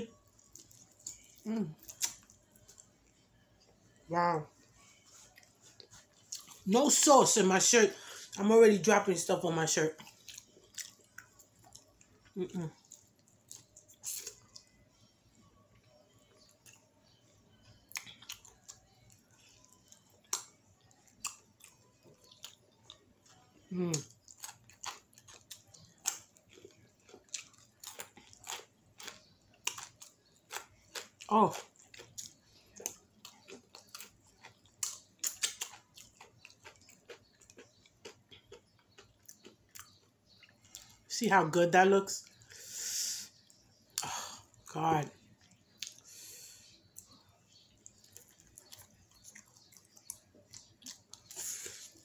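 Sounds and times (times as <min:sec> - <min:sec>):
person chewing food: 0:00.1 - 0:03.8, 0:04.8 - 0:06.7, 0:09.9 - 0:14.8, 0:15.6 - 0:41.1, 0:42.2 - 0:52.0.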